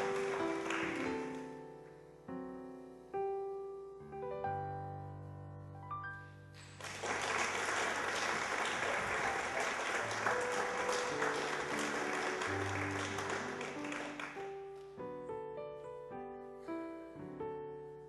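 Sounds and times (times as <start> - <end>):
audience applause: 0.0 - 1.4, 6.7 - 14.4
piano music: 0.0 - 18.0.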